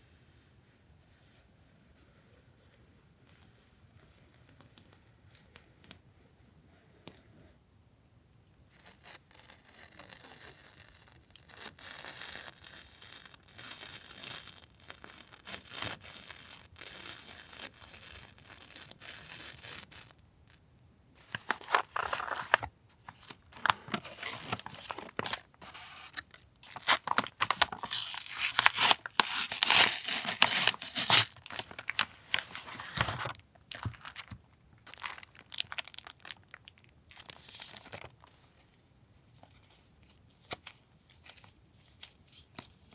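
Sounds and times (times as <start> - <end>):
packaging rustling and crinkling: 8.9 - 20.6, 21.2 - 38.6.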